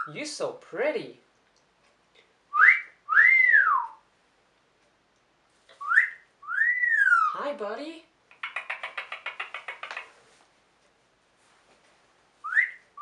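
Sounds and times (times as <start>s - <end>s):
parrot whistling: 2.5s - 4.0s, 5.7s - 7.4s, 12.4s - 13.0s.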